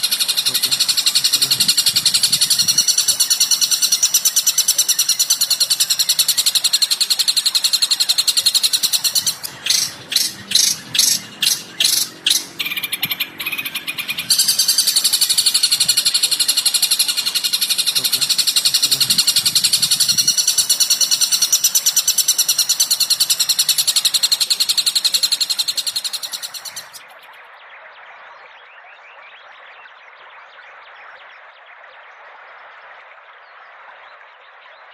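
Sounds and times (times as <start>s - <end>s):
separate bird calls: 0.0s - 27.3s
birds chirping and trilling: 0.0s - 27.4s
faint steady hiss: 13.8s - 27.1s.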